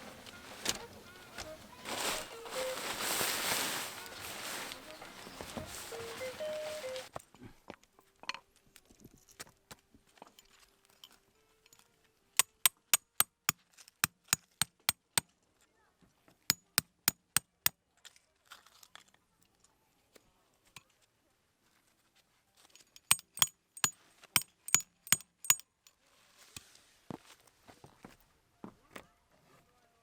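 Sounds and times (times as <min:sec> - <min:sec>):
sharp metallic strikes: 0:23.1 - 0:25.6.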